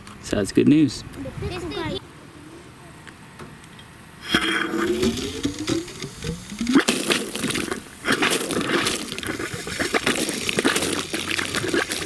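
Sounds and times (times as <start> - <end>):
water and air spitting from outlet: 4.2 - 12.0.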